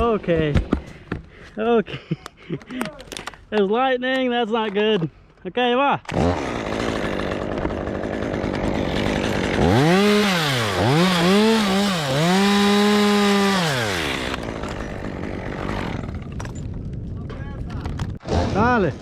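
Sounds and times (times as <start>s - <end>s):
chainsaw idling and revving: 6.1s - 16.3s.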